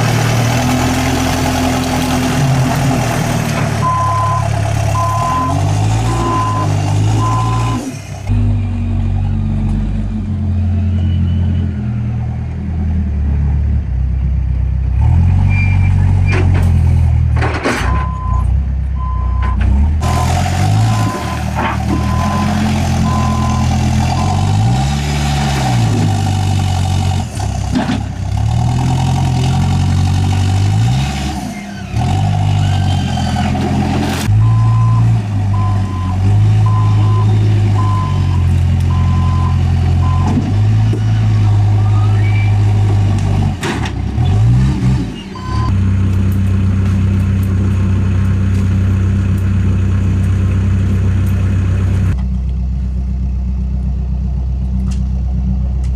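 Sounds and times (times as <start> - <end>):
heavy vehicle engine revving: 0.0 - 17.4, 18.0 - 52.6
reversing alarm beeping: 3.8 - 7.8, 20.2 - 24.6, 34.4 - 40.4.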